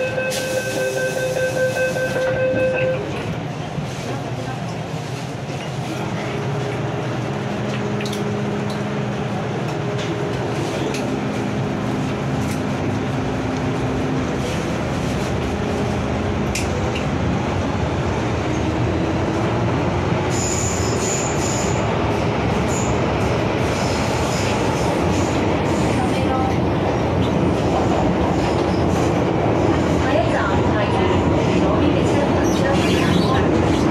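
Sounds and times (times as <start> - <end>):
wheel and track rumble: 2.0 - 33.9.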